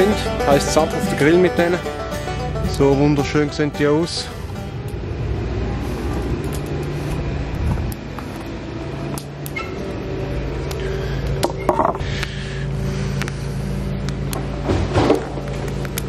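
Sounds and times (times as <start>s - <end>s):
motor engine drone: 4.2s - 16.0s.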